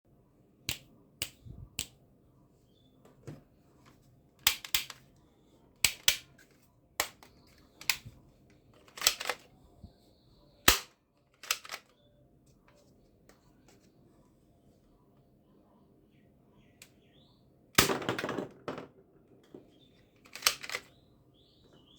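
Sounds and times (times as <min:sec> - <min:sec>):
toy guns firing: 0:04.4 - 0:05.0, 0:05.8 - 0:06.3, 0:08.9 - 0:09.4, 0:10.6 - 0:11.9, 0:17.8 - 0:18.6.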